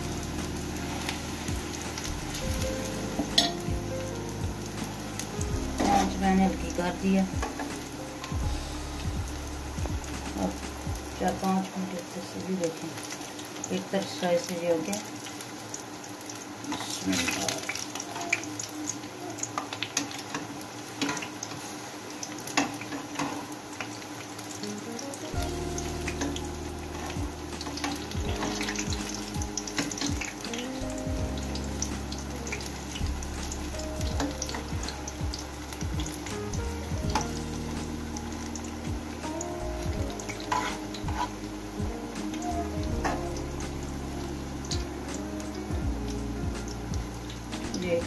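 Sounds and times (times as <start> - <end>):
food sizzling in hot oil: 0.0 - 48.0
soft background music: 0.0 - 48.0
metal tongs clicking in pan: 3.3 - 3.6.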